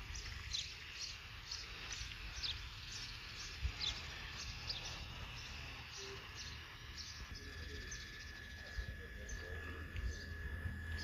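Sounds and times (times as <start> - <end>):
small bird chirping: 0.0 - 11.0
steady low rumble: 6.6 - 11.0.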